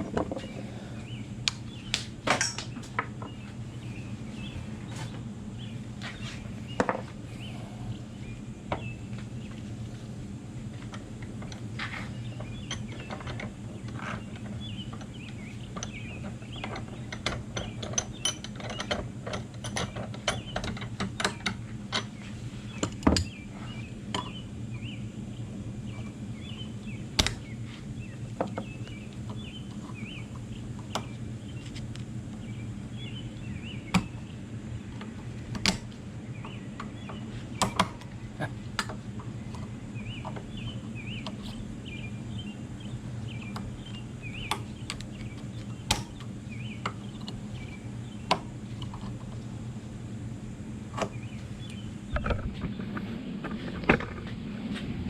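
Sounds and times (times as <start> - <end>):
steady low hum: 0.0 - 55.0
small birds chirping: 0.1 - 9.9, 10.6 - 53.8
metal knocks and clinks: 2.3 - 2.8.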